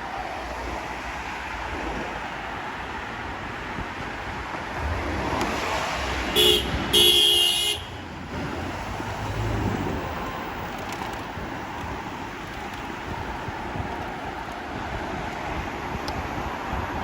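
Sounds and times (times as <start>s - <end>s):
steady traffic: 0.0s - 17.0s
wind noise: 0.0s - 17.0s
vehicle horn: 6.3s - 8.0s.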